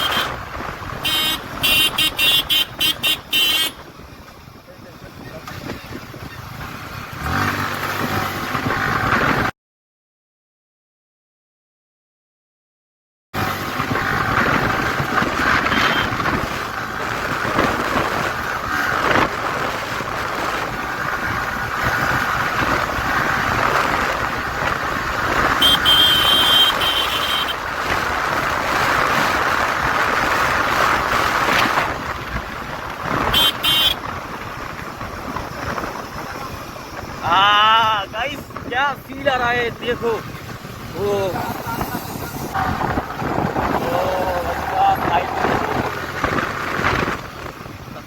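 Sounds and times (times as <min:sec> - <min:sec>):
vehicle horn: 0:00.0 - 0:00.4, 0:01.0 - 0:03.9, 0:15.6 - 0:16.2, 0:25.5 - 0:27.6, 0:33.3 - 0:34.1
motorcycle engine: 0:00.0 - 0:09.5, 0:13.4 - 0:48.0
wind rushing over microphone: 0:13.7 - 0:48.0.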